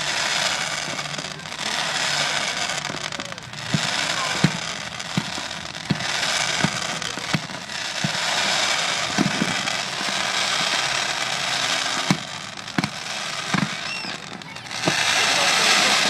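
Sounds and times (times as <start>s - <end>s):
continuous hiss: 0.0s - 16.0s
firework shells booming: 0.0s - 16.0s.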